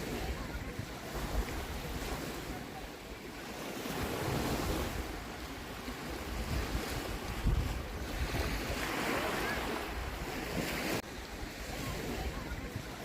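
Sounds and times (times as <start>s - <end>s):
waves washing on shore: 0.0s - 13.0s
wind buffeting microphone: 3.8s - 13.0s.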